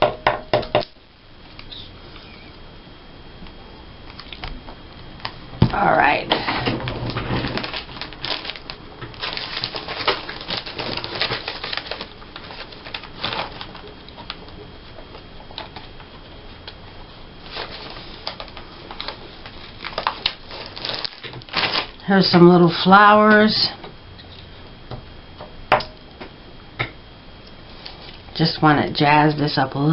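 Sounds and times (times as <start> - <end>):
paper rustling and crackling: 6.6 - 14.4, 17.4 - 22.0.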